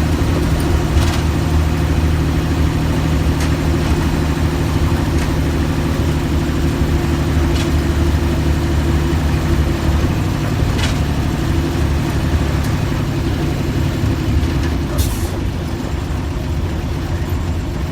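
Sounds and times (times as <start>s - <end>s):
diesel bus engine running: 0.0s - 17.9s.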